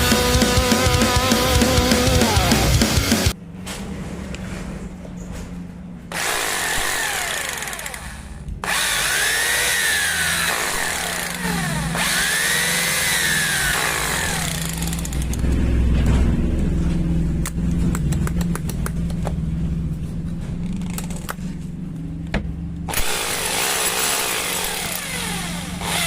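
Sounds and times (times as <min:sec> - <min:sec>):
hammer drill motor whining: 0:06.1 - 0:15.5, 0:22.9 - 0:26.0.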